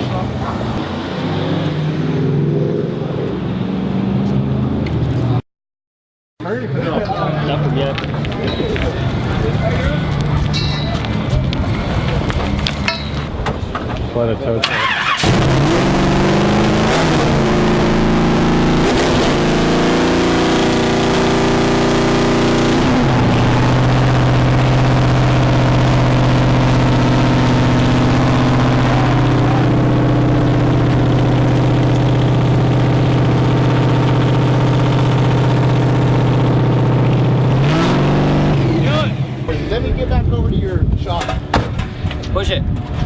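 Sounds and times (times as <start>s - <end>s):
car engine droning: 7.4s - 40.4s.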